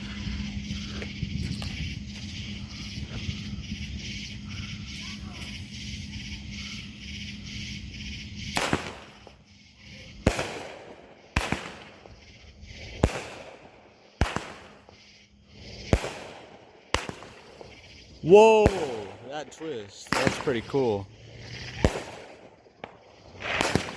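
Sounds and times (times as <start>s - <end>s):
fireworks bangs: 0.0s - 23.9s.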